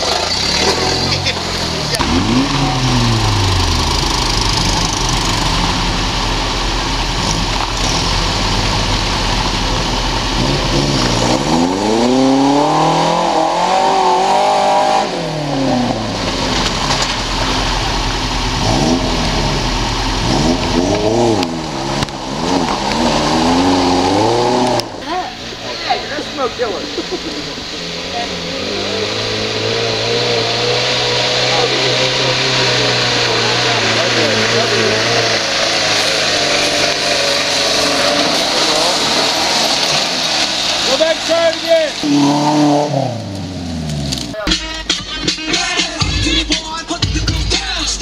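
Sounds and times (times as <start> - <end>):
buggy engine revving: 0.0 - 48.0.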